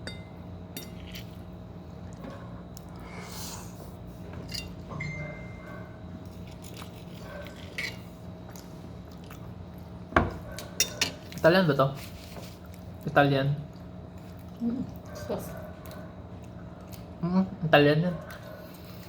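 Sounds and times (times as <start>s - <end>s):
steady background hum: 0.0s - 19.0s
person chewing food: 6.2s - 11.4s, 13.7s - 17.2s.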